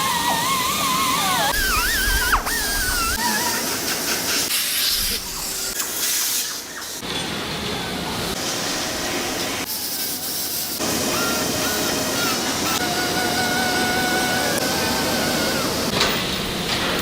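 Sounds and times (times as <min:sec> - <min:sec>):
hissing noise: 0:10.0 - 0:16.0.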